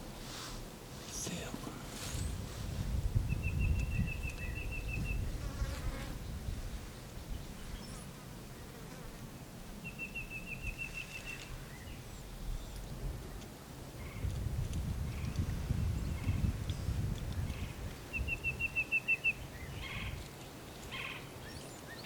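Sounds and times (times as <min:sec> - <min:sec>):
wind rumble on microphone: 0:01.3 - 0:08.0, 0:10.5 - 0:20.9.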